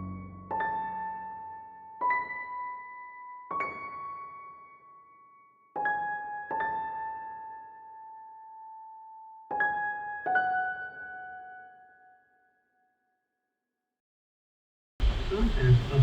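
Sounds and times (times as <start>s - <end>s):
slow piano notes: 0.0s - 12.3s.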